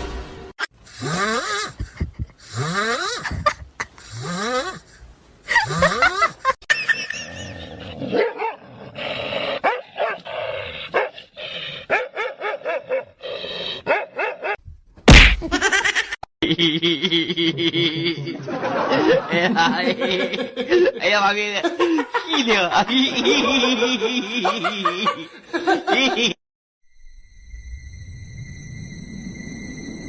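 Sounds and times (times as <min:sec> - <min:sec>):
dog barking and yipping: 0:08.1 - 0:08.6, 0:09.6 - 0:10.2, 0:11.0 - 0:11.2, 0:11.9 - 0:13.2, 0:13.8 - 0:14.6.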